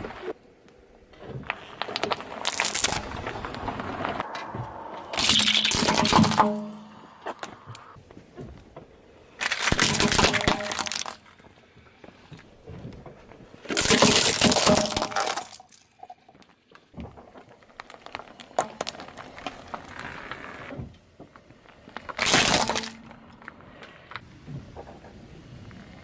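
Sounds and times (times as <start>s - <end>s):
objects breaking under car tyre: 1.4s - 4.3s, 5.2s - 7.5s, 9.4s - 11.4s, 13.6s - 16.0s, 16.9s - 20.4s, 21.2s - 24.2s.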